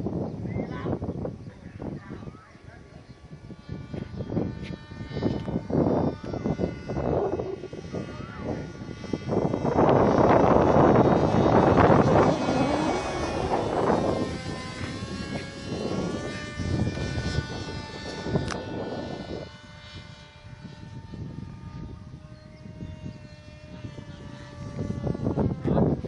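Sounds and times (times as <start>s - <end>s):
model aircraft propeller droning: 0.0s - 26.0s
wind buffeting microphone: 0.0s - 26.0s.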